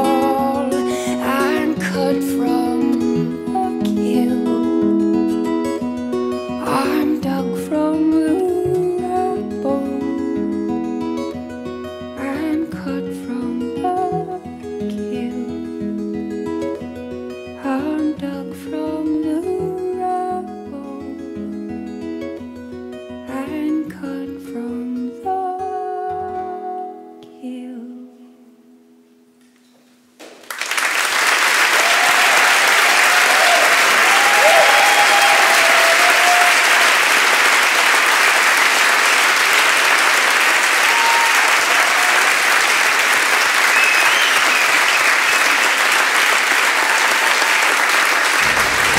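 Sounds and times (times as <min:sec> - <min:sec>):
audience applause: 0:30.2 - 0:48.9
audience cheering: 0:30.5 - 0:48.9.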